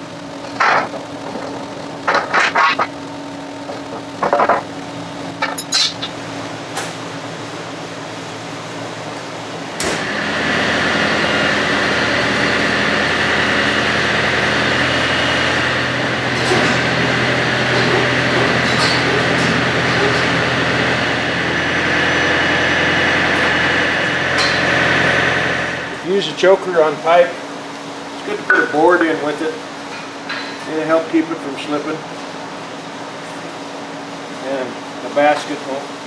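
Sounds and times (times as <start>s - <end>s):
tractor engine running: 0.0s - 6.5s.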